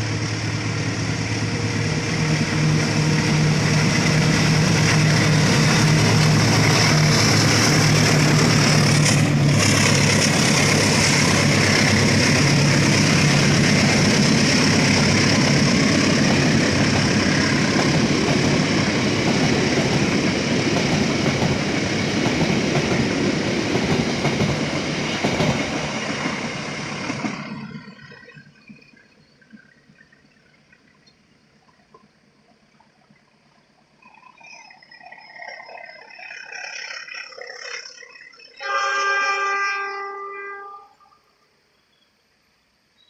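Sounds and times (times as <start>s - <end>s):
train cars rumbling past: 0.0s - 30.1s
locomotive engine hum: 0.0s - 41.0s.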